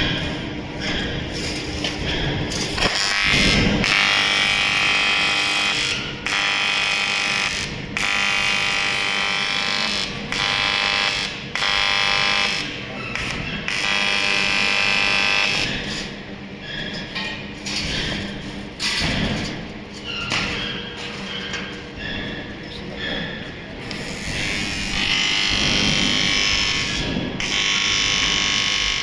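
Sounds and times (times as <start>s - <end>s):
welding arc buzzing: 2.5s - 15.8s, 23.9s - 29.0s.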